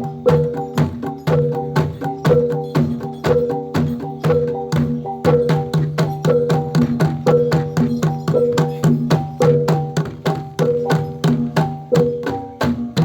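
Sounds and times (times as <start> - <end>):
hand drums: 0.0 - 13.0
metal percussion: 0.0 - 13.0.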